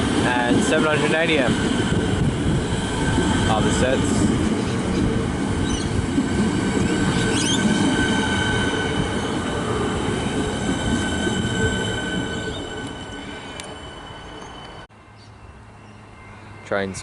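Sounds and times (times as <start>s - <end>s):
electric train rumble: 0.0s - 17.0s.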